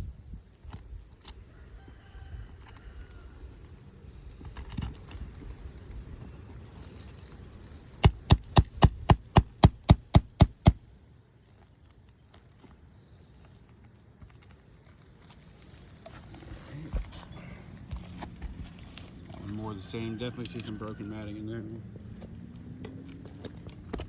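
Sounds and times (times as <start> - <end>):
hammer blows on roof: 8.0 - 10.8.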